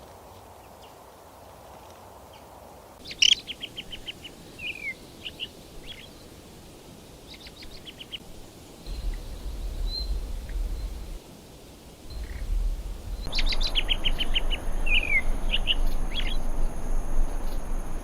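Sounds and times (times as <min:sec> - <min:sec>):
songbirds chirping: 0:03.0 - 0:18.0
low rumble: 0:08.9 - 0:11.2, 0:12.1 - 0:18.0
thin high whistles: 0:08.9 - 0:11.2.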